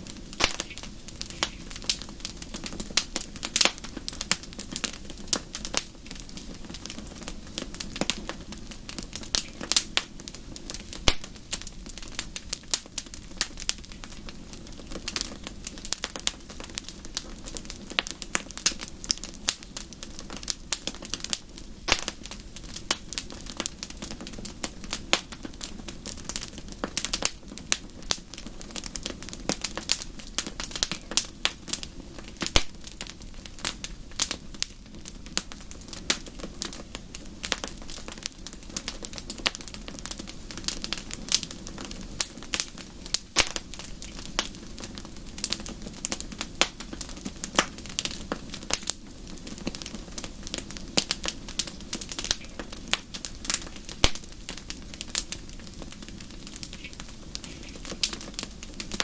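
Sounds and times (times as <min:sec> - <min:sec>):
low rumble of flames: 0:00.0 - 0:59.0
wood fire crackling: 0:00.0 - 0:59.0
sharp pops and snaps: 0:00.3 - 0:05.9, 0:11.0 - 0:11.7, 0:20.4 - 0:23.7, 0:32.4 - 0:32.9, 0:42.2 - 0:49.0, 0:50.5 - 0:55.3, 0:56.5 - 0:59.0.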